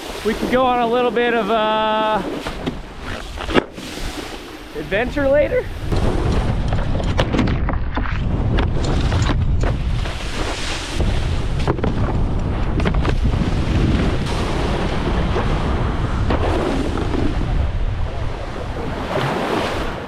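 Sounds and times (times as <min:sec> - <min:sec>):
rushing water: 0:00.0 - 0:06.6, 0:13.2 - 0:20.0
wind buffeting microphone: 0:00.0 - 0:20.0.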